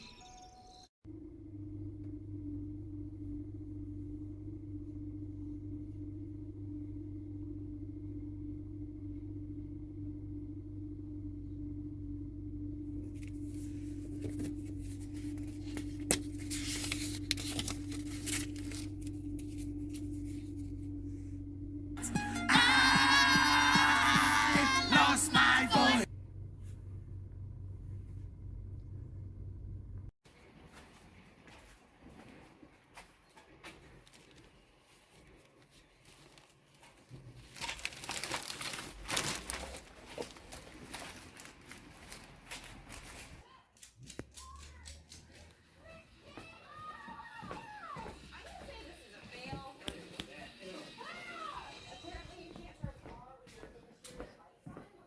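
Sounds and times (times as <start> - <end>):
low hum: 1.1 - 30.1
crinkling and crackling: 12.9 - 21.5, 30.4 - 45.7
rustling handling noises: 13.1 - 21.1, 30.4 - 43.4
pitched musical sound: 22.0 - 26.1.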